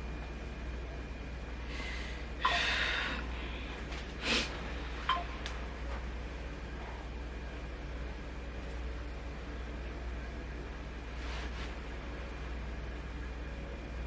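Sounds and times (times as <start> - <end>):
breathy puffs of air: 1.6 - 4.9.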